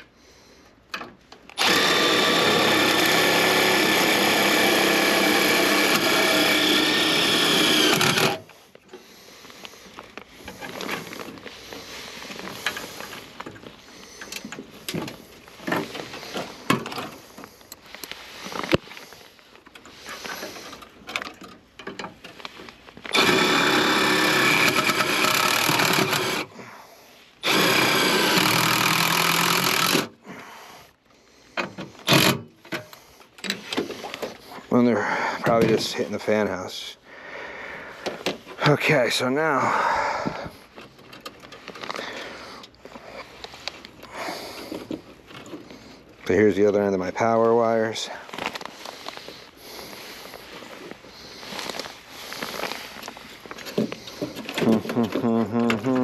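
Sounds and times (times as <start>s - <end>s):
power drill whining: 1.5s - 8.6s, 23.0s - 26.7s, 27.4s - 30.5s, 31.9s - 33.0s
tools clicking and rustling: 9.6s - 26.5s, 40.7s - 46.3s.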